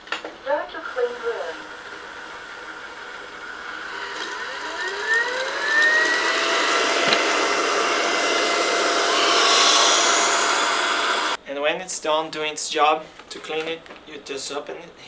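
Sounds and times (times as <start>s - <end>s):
robot vacuum fan whine: 0.0s - 11.4s
rushing airflow: 1.0s - 11.4s.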